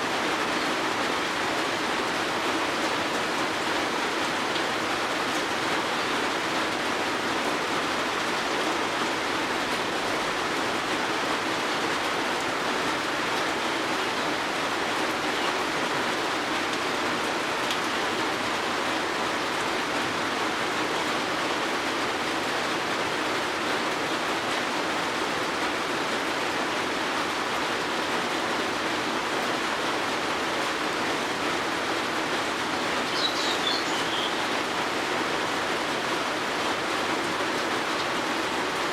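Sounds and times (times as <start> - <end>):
steady rain falling: 0.0 - 38.9
bird chirping: 33.1 - 34.5.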